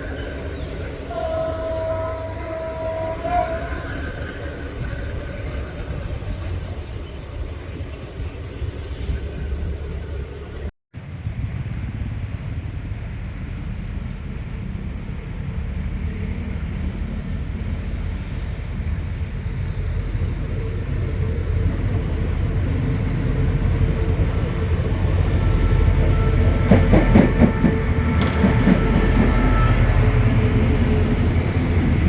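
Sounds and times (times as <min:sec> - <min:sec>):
locomotive engine drone: 0:00.0 - 0:32.0
wheels clicking over rail joints: 0:21.6 - 0:29.5.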